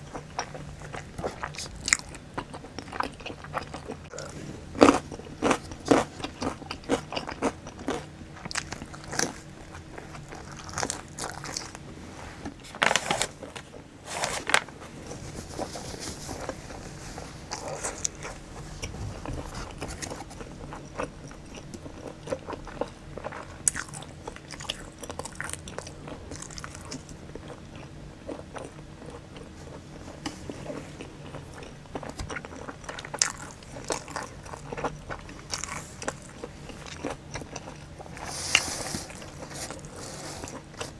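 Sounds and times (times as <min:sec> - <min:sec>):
person biting and chewing: 0:00.2 - 0:11.8.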